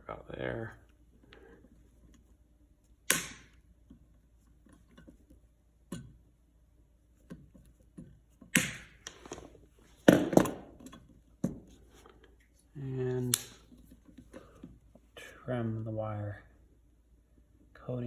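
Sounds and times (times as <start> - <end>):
cable snapping and knocking: 7.3 - 9.4.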